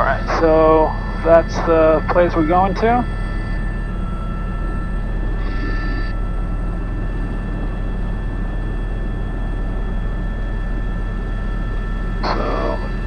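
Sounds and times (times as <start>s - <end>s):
helicopter rotor thrum: 0.0s - 13.0s
turbine engine whine: 0.0s - 13.0s.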